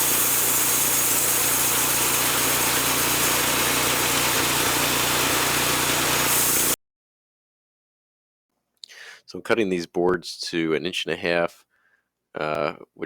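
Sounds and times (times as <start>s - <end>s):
saw blade hissing through wood: 0.0s - 6.8s
sawmill engine under load: 0.0s - 6.8s.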